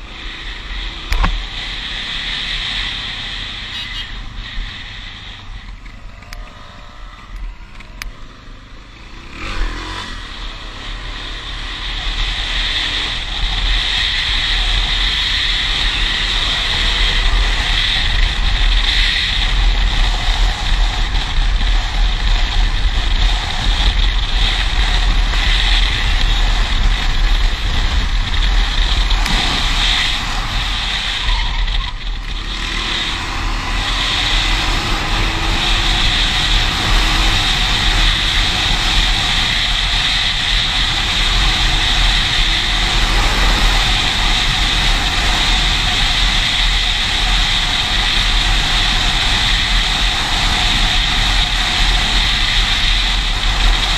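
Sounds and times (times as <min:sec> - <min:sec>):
vehicle engine deep rumble: 0:00.0 - 0:53.9.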